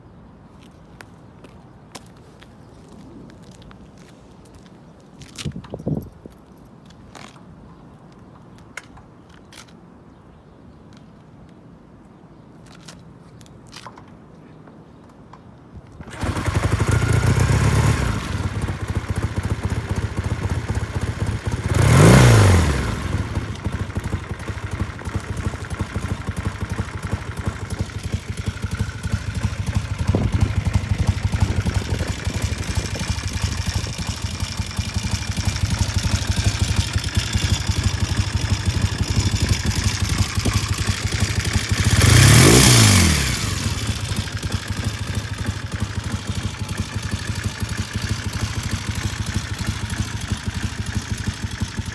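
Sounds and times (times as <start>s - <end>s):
motorcycle engine starting and idling: 15.9s - 51.9s
engine revving: 16.0s - 51.8s.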